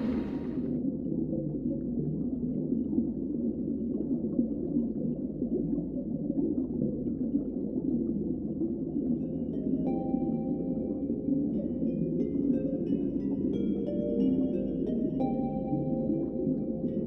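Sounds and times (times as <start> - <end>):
underwater seawater rumble: 0.0 - 0.8.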